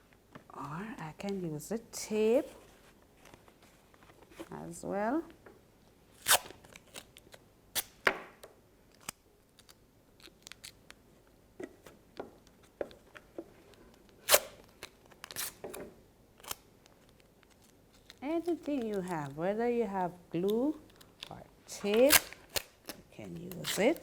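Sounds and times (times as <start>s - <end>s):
adhesive tape ripping: 6.2s - 8.0s, 14.2s - 15.7s, 16.4s - 19.3s, 20.5s - 24.0s.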